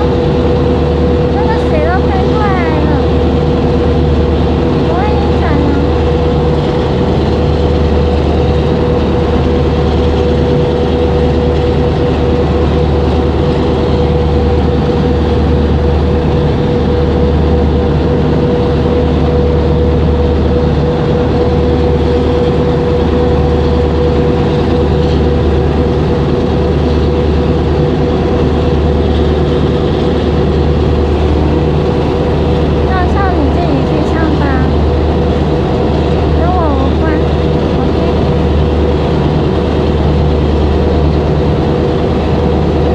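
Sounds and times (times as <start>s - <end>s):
boat engine drone: 0.0s - 42.9s.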